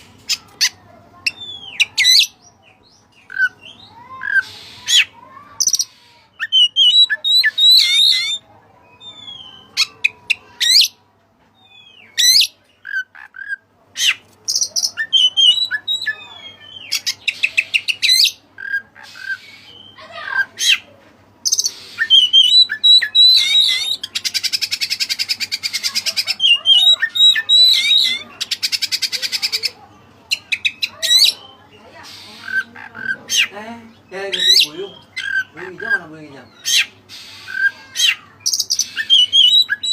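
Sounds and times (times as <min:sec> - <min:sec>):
bird harsh calls: 0:00.0 - 0:11.0, 0:11.6 - 0:39.9
bird singing varied song: 0:00.2 - 0:39.9
buzzy rattling bird trills: 0:36.6 - 0:39.9.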